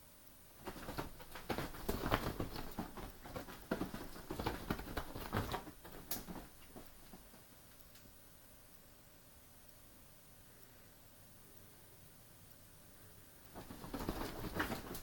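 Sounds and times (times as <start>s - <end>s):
cat paws scrabbling on floor: 0.6s - 8.0s, 13.5s - 15.0s.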